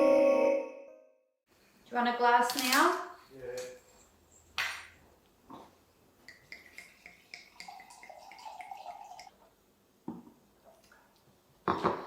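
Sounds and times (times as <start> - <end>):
liquid poured into a glass: 6.6 - 9.3.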